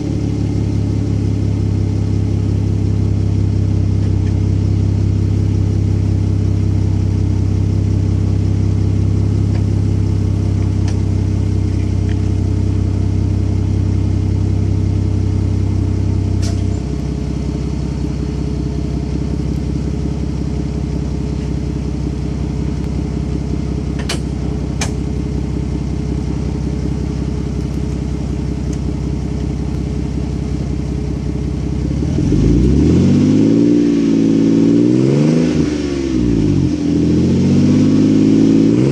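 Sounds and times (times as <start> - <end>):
car engine idling: 0.0 - 34.8
engine revving: 31.8 - 38.9.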